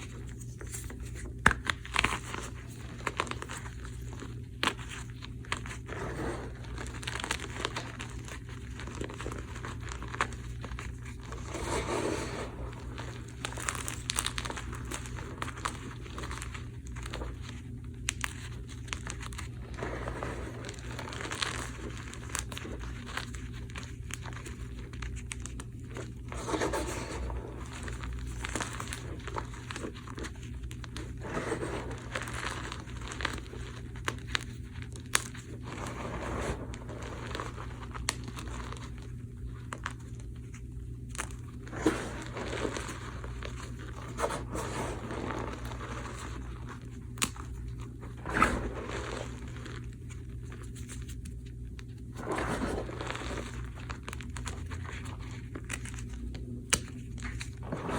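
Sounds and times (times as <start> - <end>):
steady low hum: 0.0 - 57.9
chalk blocks crunching and crumbling: 5.8 - 17.4, 26.0 - 34.4, 41.2 - 51.2.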